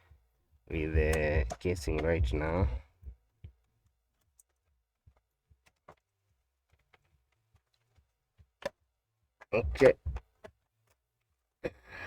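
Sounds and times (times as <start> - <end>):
clicks of plastic laptop casing: 3.5 - 11.0.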